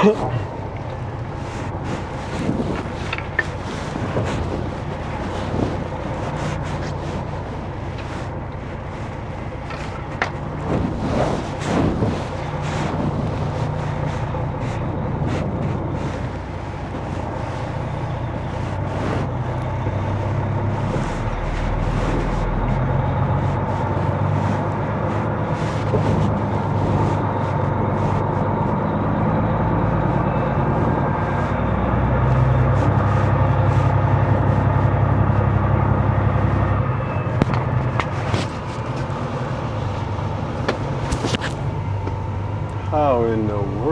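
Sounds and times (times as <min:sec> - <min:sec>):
truck diesel engine running: 0:00.0 - 0:43.9.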